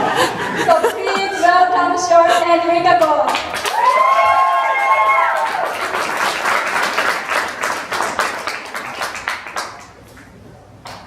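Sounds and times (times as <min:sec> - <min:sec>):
audience applauding: 0:03.3 - 0:10.3.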